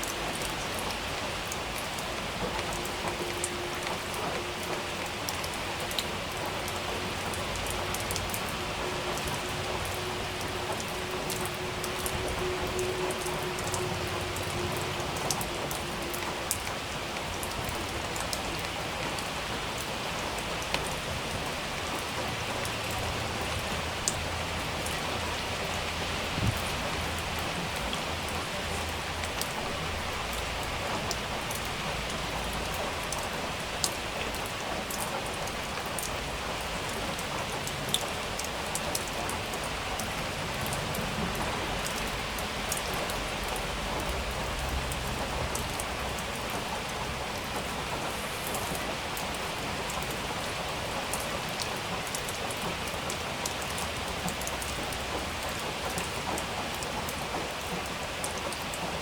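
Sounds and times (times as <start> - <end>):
raindrops ticking: 0.0 - 59.0
steady rain falling: 0.0 - 59.0.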